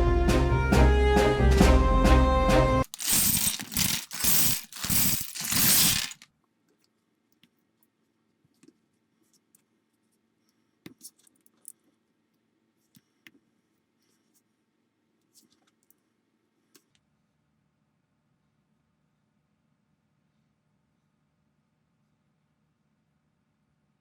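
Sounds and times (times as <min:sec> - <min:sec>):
plastic blocks rattling and tumbling: 0:02.8 - 0:06.2.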